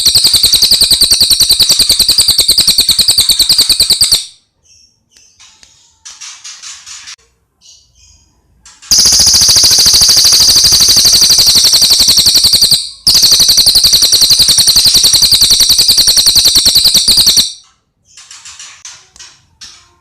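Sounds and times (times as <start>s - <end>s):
bird trilling rapidly: 0.0s - 4.4s, 8.9s - 17.6s.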